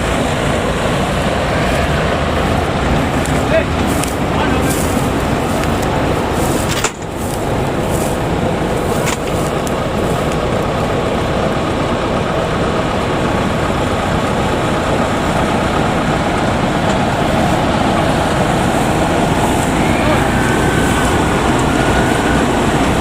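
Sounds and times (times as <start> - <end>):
diesel engine running loudly: 0.0 - 23.0.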